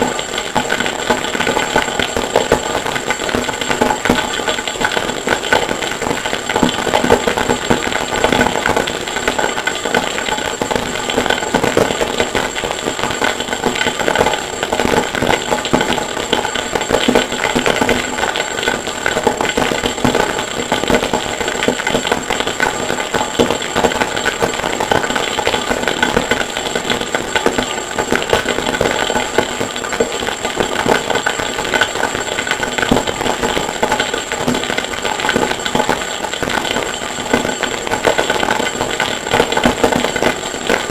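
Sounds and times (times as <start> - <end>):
harsh noise music crackle: 0.0 - 40.9.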